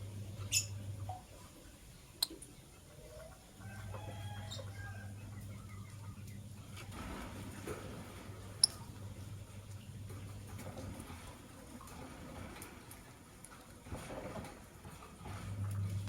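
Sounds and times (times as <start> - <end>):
steady low hum: 0.0 - 3.0.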